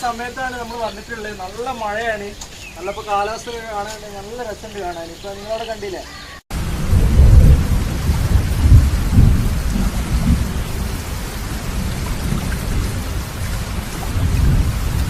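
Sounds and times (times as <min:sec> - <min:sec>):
heavy rain falling: 0:00.0 - 0:05.7, 0:06.5 - 0:15.0
deep low rumble: 0:06.6 - 0:10.8.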